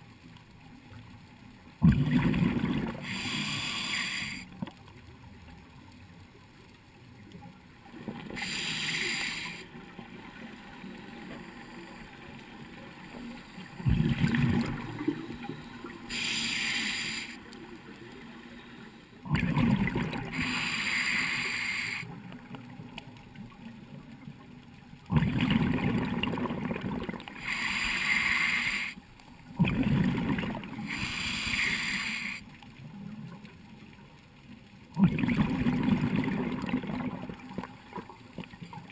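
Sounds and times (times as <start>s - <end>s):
bubbling rumble of exhale: 1.8s - 4.4s, 13.8s - 17.2s, 19.2s - 22.0s, 25.1s - 28.8s, 29.6s - 32.4s, 35.0s - 38.1s
regulator hiss on inhale: 3.0s - 4.6s, 8.3s - 12.2s, 15.2s - 17.6s, 18.2s - 19.2s, 20.3s - 22.2s, 27.3s - 29.0s, 30.8s - 32.6s.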